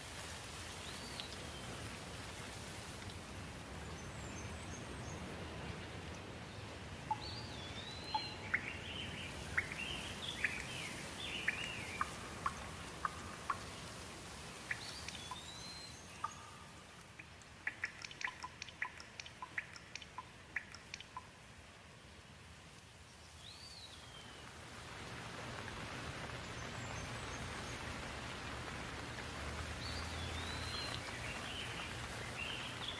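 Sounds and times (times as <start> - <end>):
water hiss: 0.0 - 4.1, 9.1 - 16.5, 23.4 - 32.9
songbird singing: 0.8 - 1.9, 3.7 - 21.4, 23.0 - 24.6, 26.3 - 32.9
short sharp bird ticks: 17.0 - 21.3.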